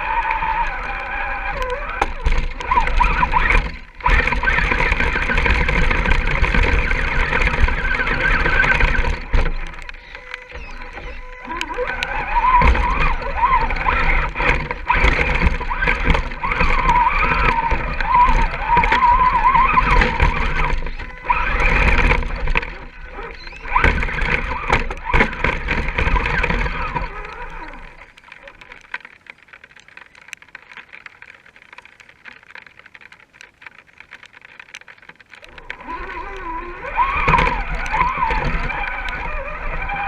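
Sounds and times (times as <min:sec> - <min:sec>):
electric motor and gears whining: 0:00.0 - 0:30.7, 0:34.2 - 0:40.0.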